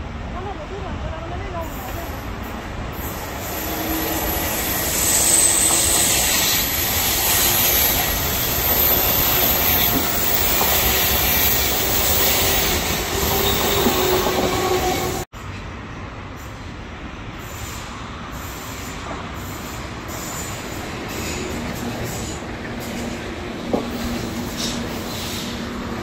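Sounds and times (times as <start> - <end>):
train passing close by: 0.0 - 26.0
high-pitched wheel squeal: 3.0 - 15.2.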